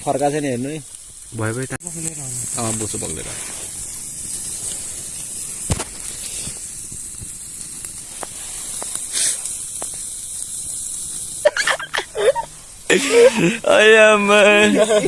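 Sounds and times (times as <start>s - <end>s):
campfire crackling and popping: 0.0s - 15.0s
fat sizzling in flames: 0.0s - 15.0s
person speaking: 11.9s - 15.0s.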